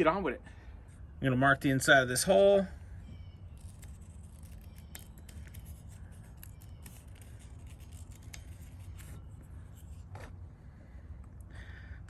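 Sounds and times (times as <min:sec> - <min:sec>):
marker scratching on steel: 0:03.6 - 0:10.0.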